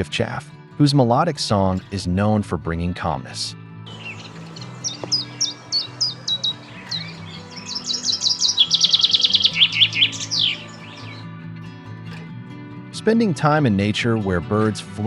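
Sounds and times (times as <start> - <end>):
soft background music: 0.0 - 15.0
songbird singing: 3.9 - 11.3.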